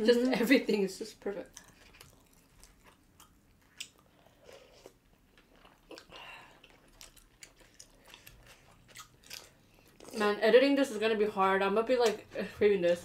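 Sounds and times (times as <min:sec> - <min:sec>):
people chewing: 0:00.1 - 0:10.4.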